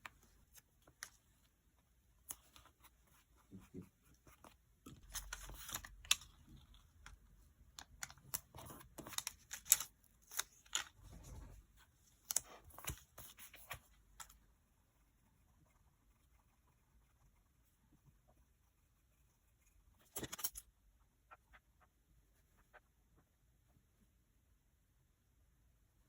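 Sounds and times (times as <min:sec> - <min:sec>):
paper rustling and crinkling: 0:04.4 - 0:06.9, 0:08.0 - 0:14.4, 0:20.0 - 0:20.6.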